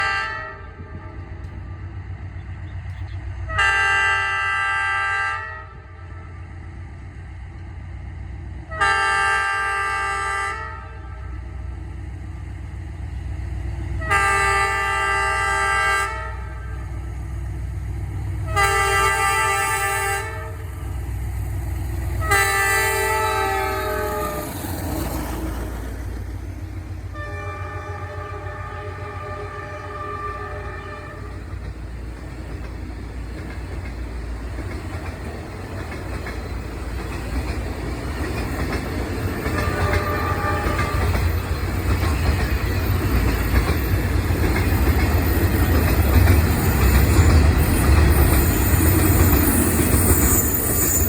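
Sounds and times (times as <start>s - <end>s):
train horn blasts: 0.0s - 1.3s, 3.5s - 6.4s, 8.7s - 11.4s, 14.0s - 16.9s, 18.4s - 20.8s, 22.2s - 24.6s, 27.1s - 31.6s, 39.4s - 41.4s
train rumble: 0.0s - 51.0s.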